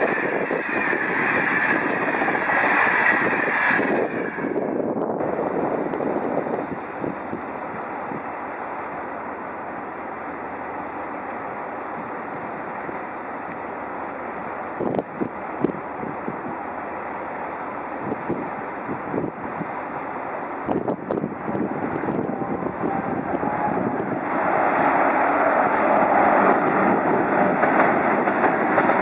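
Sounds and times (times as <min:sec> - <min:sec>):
wind on the microphone: 0:00.0 - 0:08.3, 0:14.8 - 0:16.7, 0:18.0 - 0:20.0, 0:20.6 - 0:25.0
freight train rolling: 0:00.0 - 0:29.0.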